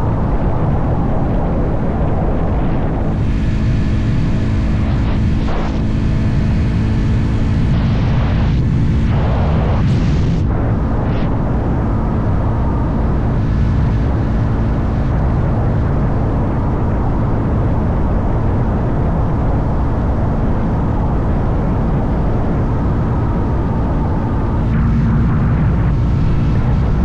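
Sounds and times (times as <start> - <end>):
wind noise: 0.0 - 27.0.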